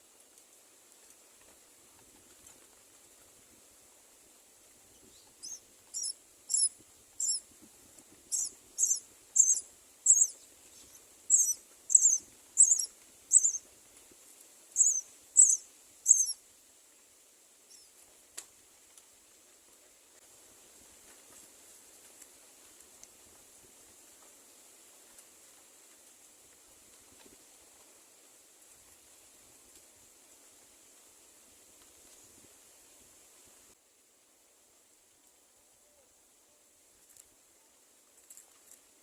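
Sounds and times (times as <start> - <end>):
bird high-pitched chirps: 5.1 - 7.4, 8.3 - 13.6, 14.8 - 16.4
faint click: 18.3 - 19.1, 22.0 - 23.2.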